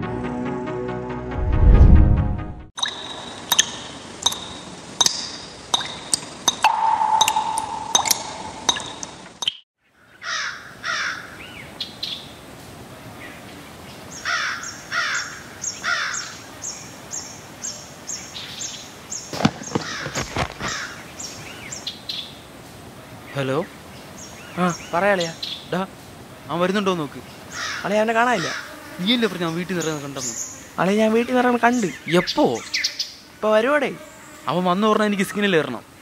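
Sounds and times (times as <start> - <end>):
birds chirping and calling: 3.5 - 12.2, 27.2 - 33.2.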